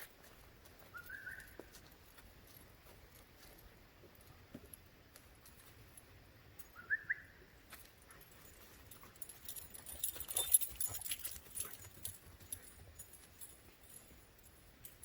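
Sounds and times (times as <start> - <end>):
metallic clinks and jingling: 7.8 - 15.0.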